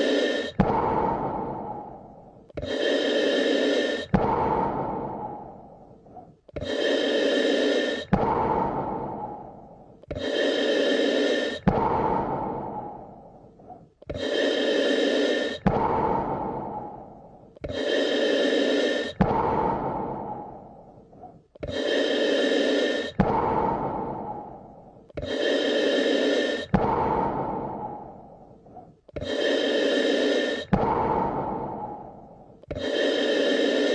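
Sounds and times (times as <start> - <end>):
slow deep breathing: 0.0 - 33.9.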